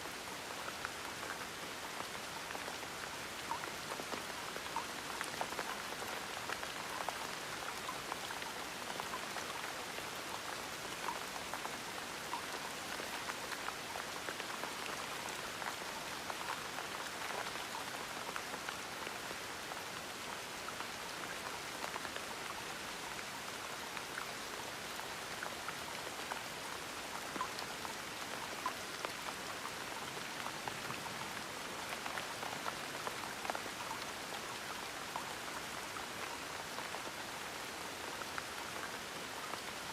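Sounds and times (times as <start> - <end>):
gentle rain: 0.0 - 39.9
raindrops pattering on a surface: 0.0 - 39.9.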